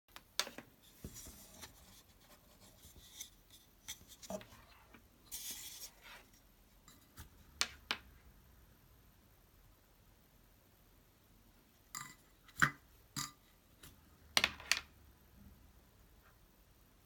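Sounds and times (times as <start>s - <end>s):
parts scraping and rubbing: 0.8s - 7.4s.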